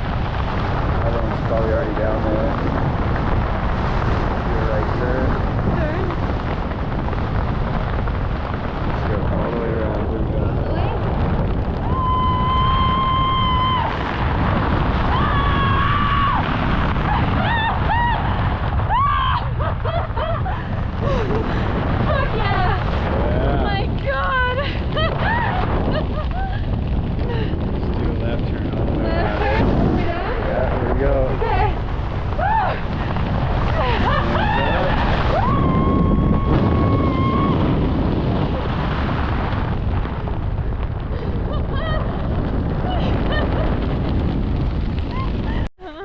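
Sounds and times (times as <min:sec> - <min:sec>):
wind buffeting microphone: 0:00.0 - 0:46.0
person whooping and crying out: 0:11.8 - 0:14.2, 0:15.0 - 0:16.5, 0:17.1 - 0:21.3, 0:24.9 - 0:26.6, 0:32.3 - 0:33.0, 0:33.8 - 0:37.8, 0:41.3 - 0:43.6.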